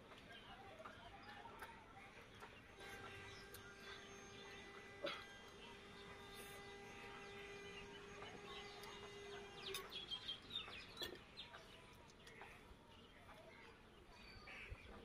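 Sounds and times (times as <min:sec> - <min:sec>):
birds chirping: 0:00.0 - 0:15.0
faint steady drone: 0:01.6 - 0:13.2.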